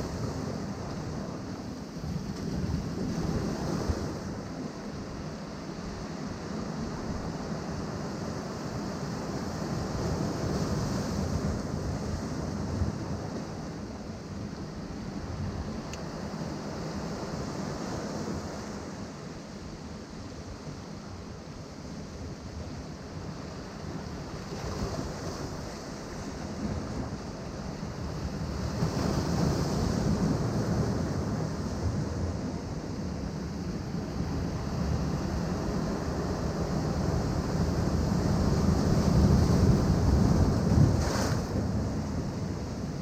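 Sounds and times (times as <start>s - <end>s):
ocean waves breaking on rocks: 23.3s - 43.0s.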